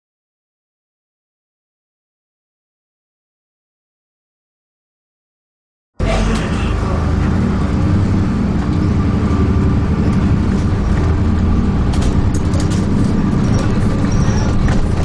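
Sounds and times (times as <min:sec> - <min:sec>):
bus diesel engine: 0:06.0 - 0:15.0
road noise: 0:06.0 - 0:15.0.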